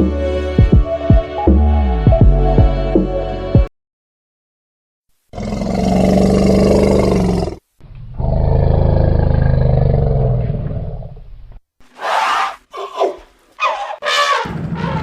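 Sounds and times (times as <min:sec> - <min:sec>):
large animal roaring: 0:05.4 - 0:11.2.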